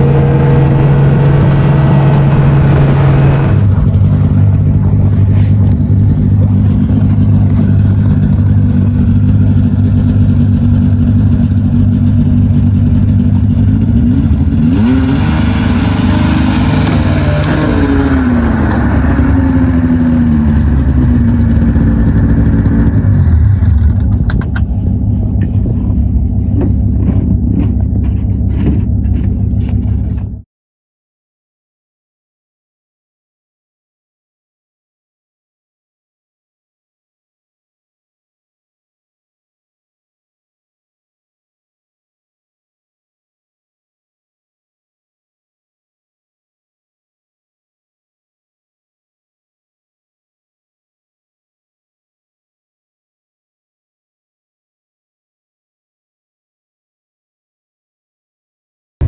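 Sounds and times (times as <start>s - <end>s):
vehicle engine running loudly: 0.0s - 30.4s.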